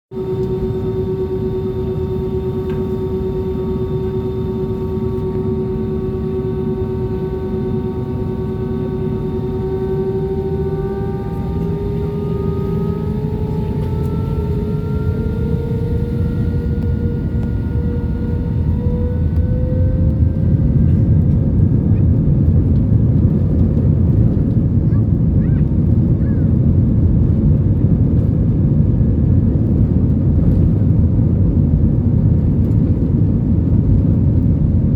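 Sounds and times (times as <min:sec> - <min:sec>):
jet engines spooling up: 0:00.2 - 0:24.8
low rumble: 0:00.2 - 0:34.9.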